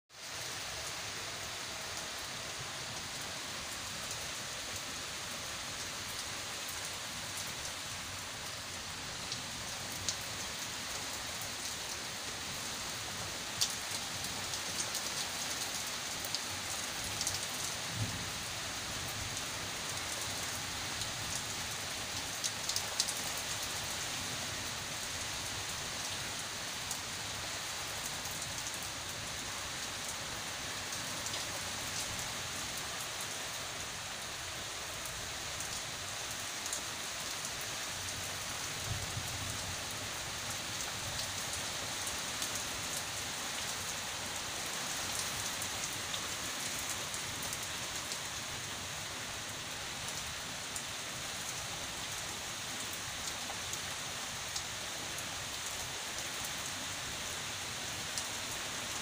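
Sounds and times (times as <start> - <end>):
heavy rain on foliage and patio: 0.1 - 59.0
raindrops ticking close by: 13.4 - 24.0.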